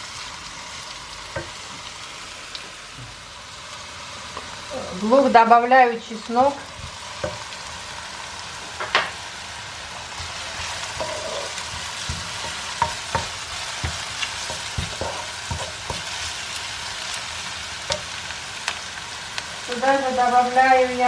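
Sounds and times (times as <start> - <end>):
onion sizzling in frying pan: 0.0 - 21.0
utensil tapping pan: 6.8 - 7.5, 10.1 - 16.2.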